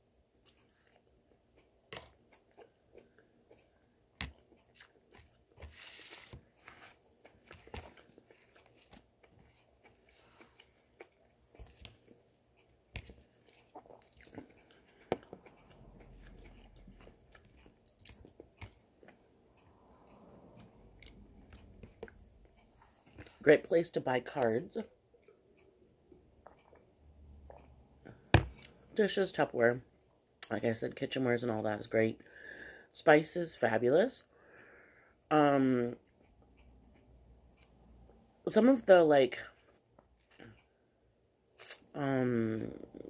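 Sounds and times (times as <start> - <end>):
person chewing food: 0.0 - 23.4, 24.8 - 28.8.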